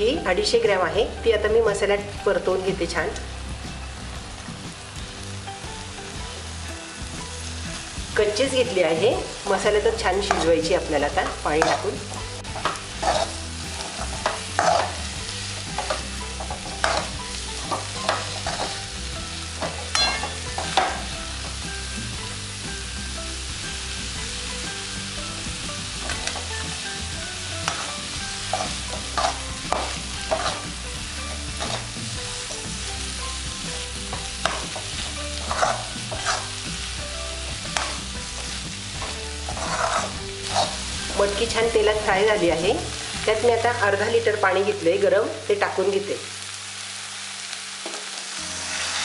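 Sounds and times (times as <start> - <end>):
beans sizzling in oil: 0.0 - 49.0
metal spatula scraping pan: 11.2 - 15.0, 17.7 - 18.8, 27.6 - 32.0, 34.1 - 36.6, 37.7 - 40.9.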